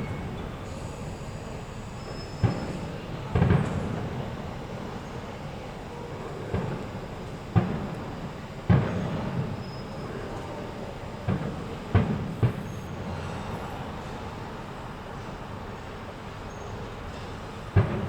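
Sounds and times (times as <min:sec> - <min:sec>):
fireworks bangs: 0:02.1 - 0:04.3, 0:06.5 - 0:08.0, 0:08.7 - 0:10.2, 0:11.2 - 0:13.4, 0:17.7 - 0:18.0.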